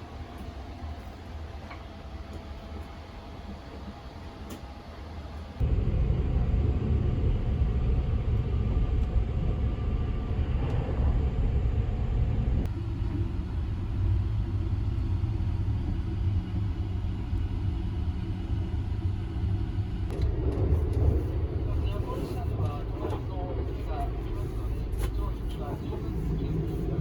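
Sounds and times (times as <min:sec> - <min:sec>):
train rumbling on rails: 0:00.0 - 0:27.0.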